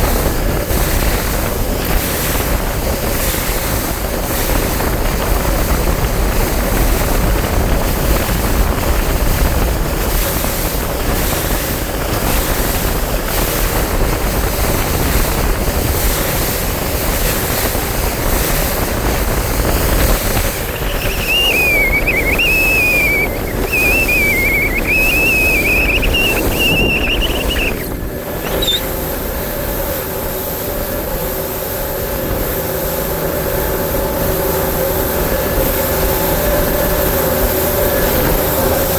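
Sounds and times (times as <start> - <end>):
boat motor running: 0.0 - 38.9
wind buffeting microphone: 0.0 - 38.9
steady hum: 18.0 - 31.8
high wavering whistle tone: 20.6 - 28.9.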